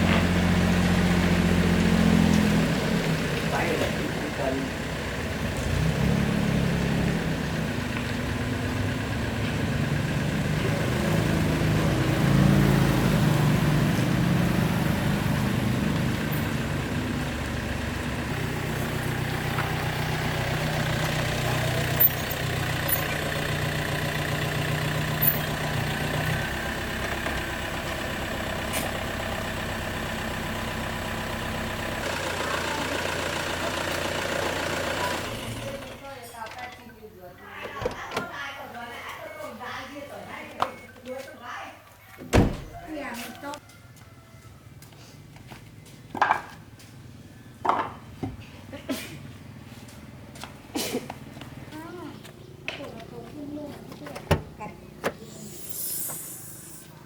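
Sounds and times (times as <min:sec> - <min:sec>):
engine running near idle: 0:00.0 - 0:36.3.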